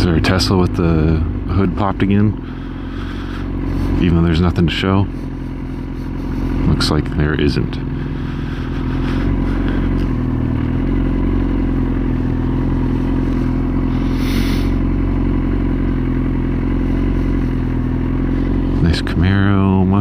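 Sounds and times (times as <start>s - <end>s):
motorcycle engine at low revs: 0.0s - 20.0s
brief hiss: 14.0s - 14.8s.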